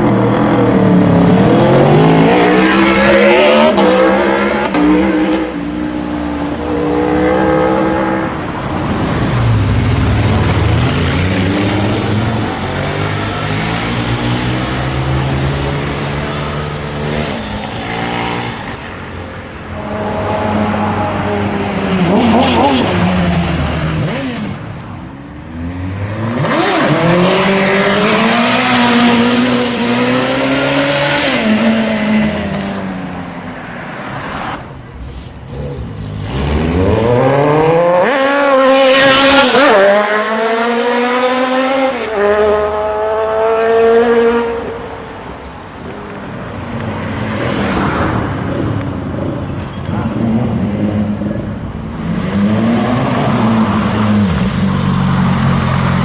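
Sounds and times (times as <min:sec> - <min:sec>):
motorcycles accelerating hard: 0:19.8 - 0:24.7, 0:25.6 - 0:32.8, 0:35.5 - 0:44.7.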